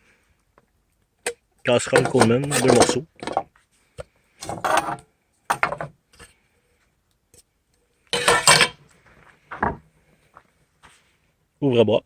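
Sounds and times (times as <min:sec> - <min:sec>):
metal cook pot clanking: 0:08.2 - 0:08.8.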